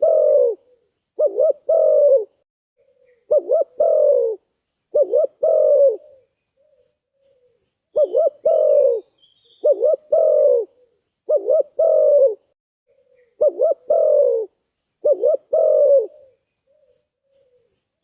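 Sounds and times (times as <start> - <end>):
dove cooing: 0.0 - 17.8
faint high bird chirps: 2.8 - 12.2, 12.9 - 14.4, 15.0 - 18.0.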